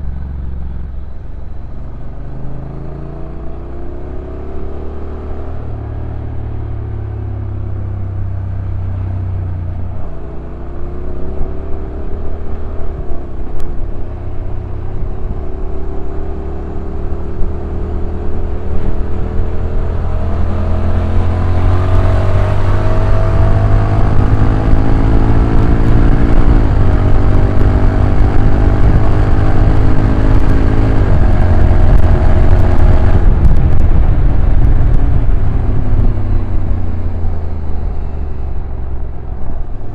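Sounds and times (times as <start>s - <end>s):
motorcycle engine revving: 0.0s - 39.9s
wind noise on microphone: 0.0s - 39.9s.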